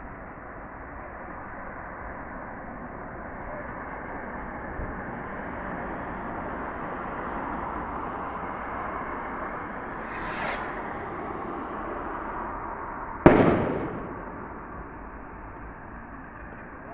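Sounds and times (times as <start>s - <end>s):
distant fireworks crackling: 9.9s - 12.6s, 13.2s - 15.4s
steady rushing outdoor noise: 9.9s - 15.2s.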